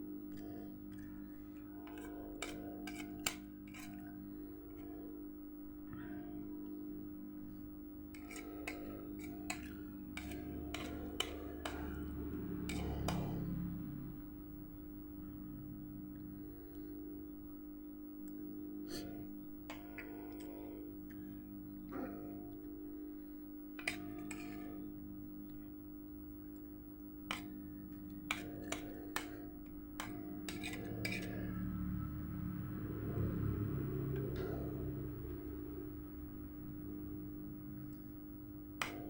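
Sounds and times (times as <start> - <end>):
steady low hum: 0.0 - 39.0
spoon scraping on a plate: 0.3 - 5.0, 8.1 - 13.6, 23.8 - 24.9, 28.2 - 31.8
low rumble: 31.5 - 38.0.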